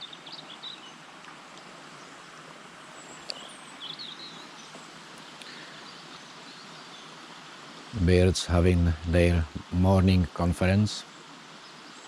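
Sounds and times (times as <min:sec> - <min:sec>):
river water flowing: 0:00.0 - 0:12.0
bird chirps: 0:03.0 - 0:07.1.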